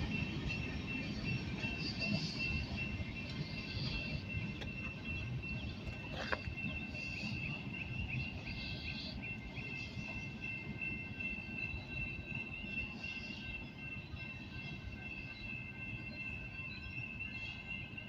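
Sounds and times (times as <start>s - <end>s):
freight train cars rumbling: 0.0s - 18.0s
steady high-pitched tone: 0.0s - 18.0s.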